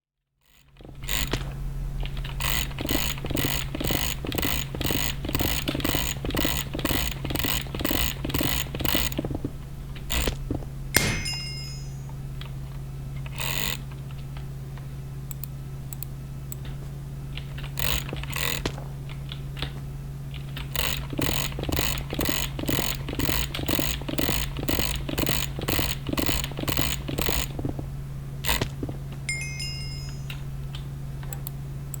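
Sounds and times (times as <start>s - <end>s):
rapid mechanical clicking: 0.4s - 11.3s, 15.3s - 29.2s
steady low hum: 0.6s - 32.0s
brief high ringing tones: 11.0s - 12.2s, 29.3s - 30.4s.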